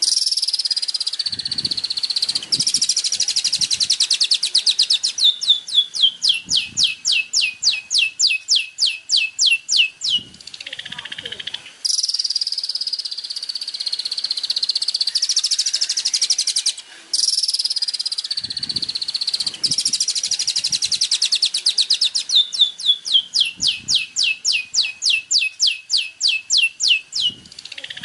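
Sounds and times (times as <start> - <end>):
buzzing songbird trill: 11.8 - 28.0.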